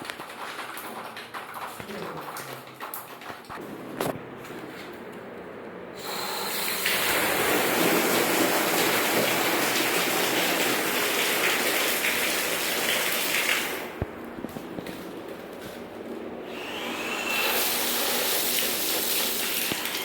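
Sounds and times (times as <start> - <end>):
running water gushing: 6.0 - 14.0, 17.0 - 20.0.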